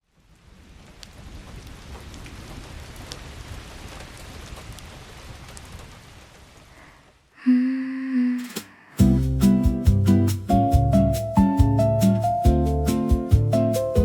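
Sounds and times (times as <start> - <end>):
rain falling: 0.0 - 7.4.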